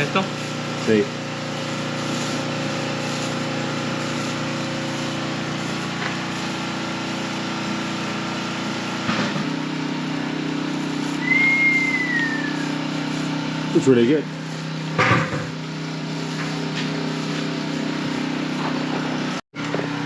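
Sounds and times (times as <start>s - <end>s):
small engine running: 0.0s - 20.0s
high whistle-like tone: 11.2s - 12.8s.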